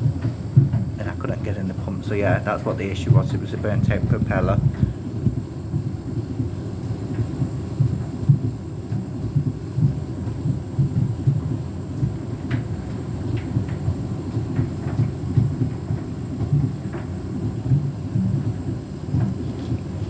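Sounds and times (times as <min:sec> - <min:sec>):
washing machine rumbling: 0:00.0 - 0:20.0.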